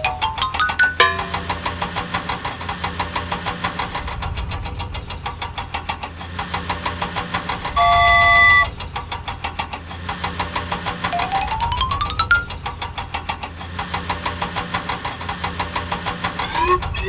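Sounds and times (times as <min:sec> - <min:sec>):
cartoon toy engine chugging: 0:07.8 - 0:08.7
horn blast: 0:07.8 - 0:08.7.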